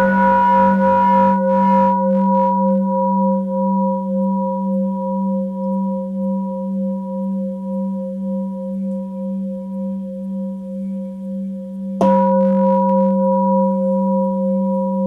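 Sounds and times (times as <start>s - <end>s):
singing bowl ringing: 0.0s - 10.3s, 12.0s - 15.0s.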